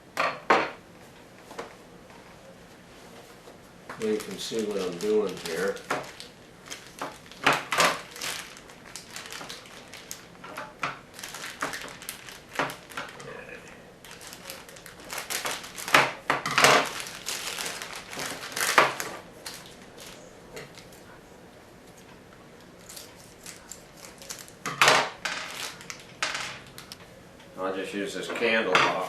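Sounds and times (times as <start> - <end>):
packaging crinkling and rustling: 4.0 - 13.4, 14.0 - 21.0, 22.8 - 27.0.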